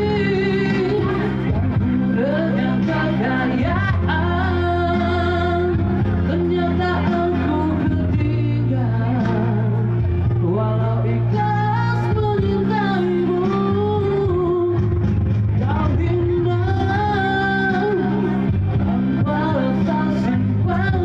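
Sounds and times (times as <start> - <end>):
man singing pop ballad: 0.0 - 21.0
sustained backing chords: 0.0 - 21.0.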